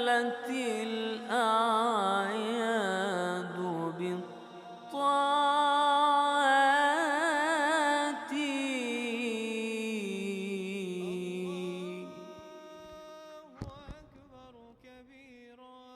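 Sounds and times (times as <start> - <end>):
man chanting melismatic melody: 10.9 - 14.0.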